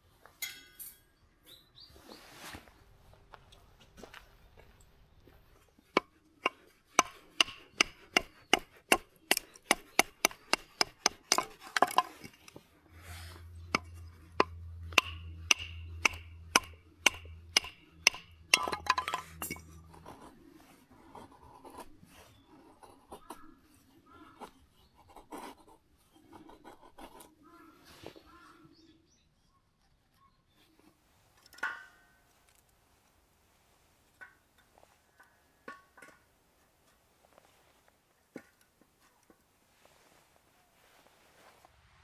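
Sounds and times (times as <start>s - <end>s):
wood being struck: 5.9s - 12.5s, 13.6s - 19.7s
low hum: 12.6s - 20.4s.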